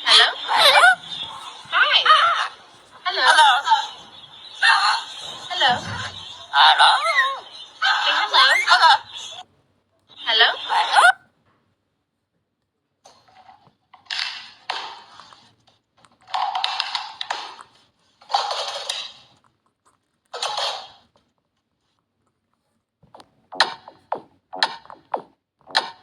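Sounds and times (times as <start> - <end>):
parrot harsh raspy calls: 0.0 - 9.4
clicky electronic music: 23.2 - 26.0.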